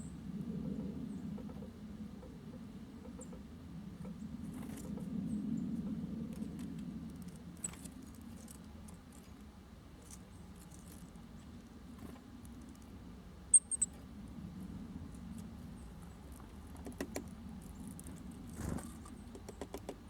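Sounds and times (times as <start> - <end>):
short high bird chirps: 13.5 - 13.9
birds pecking taps: 19.3 - 20.0.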